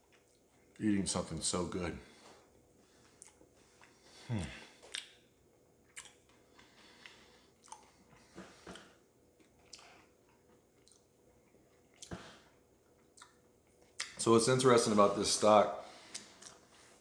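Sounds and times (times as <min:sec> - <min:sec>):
person chewing: 0:03.0 - 0:05.2, 0:05.8 - 0:14.2, 0:16.1 - 0:16.7
sharp mouth clicks: 0:04.9 - 0:05.2, 0:05.9 - 0:06.2.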